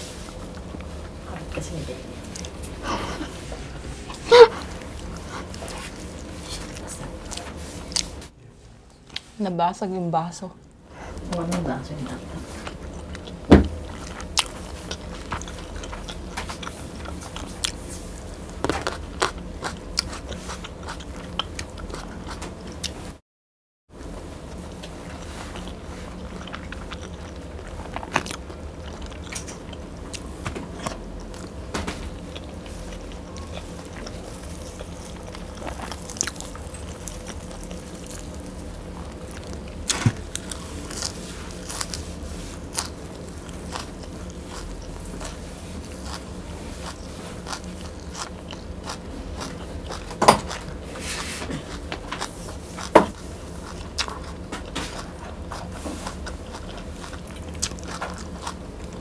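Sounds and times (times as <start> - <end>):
low hum: 0.0 - 23.2, 24.0 - 59.0
chewing food: 12.5 - 23.1, 24.5 - 59.0.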